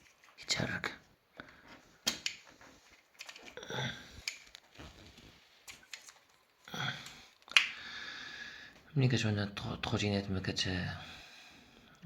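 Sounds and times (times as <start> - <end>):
light clicks and rattles of wiring: 2.0 - 7.7.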